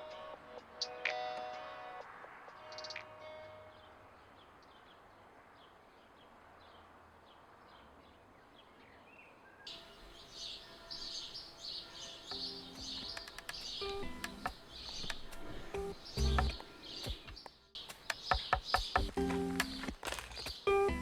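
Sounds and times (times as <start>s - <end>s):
songbirds chirping: 2.7s - 21.0s
low hiss: 9.7s - 21.0s
guitar music: 12.3s - 17.4s, 18.8s - 21.0s.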